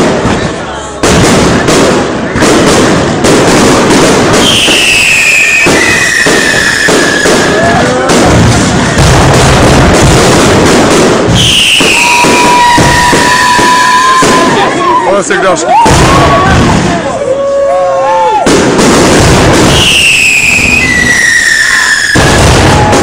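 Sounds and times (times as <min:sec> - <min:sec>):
fireworks bangs and crackling: 0:00.0 - 0:23.0
whistling fireworks shells: 0:04.2 - 0:14.8, 0:19.1 - 0:23.0.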